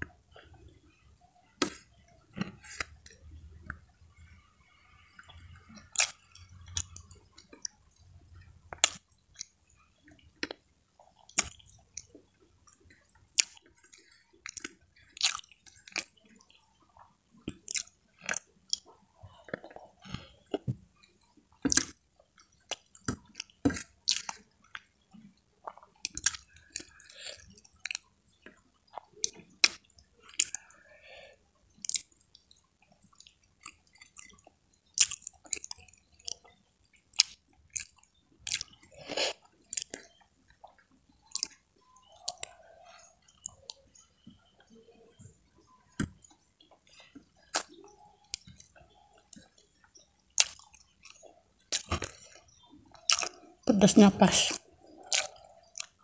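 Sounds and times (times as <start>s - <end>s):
person chewing with wet smacks: 0.0s - 56.0s
soft food crunches: 5.0s - 8.0s, 8.7s - 53.7s, 54.5s - 56.0s.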